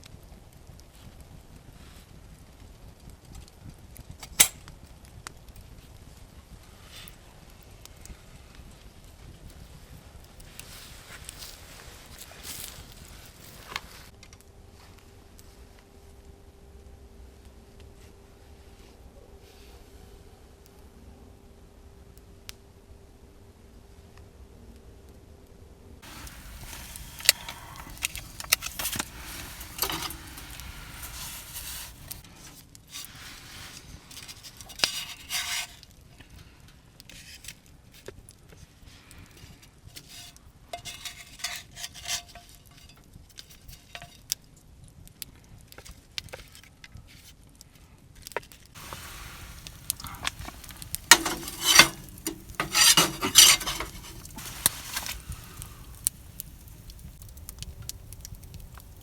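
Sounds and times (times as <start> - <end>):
metal utensils clinking on pan: 26.0 - 32.2, 40.8 - 42.9, 48.8 - 57.2.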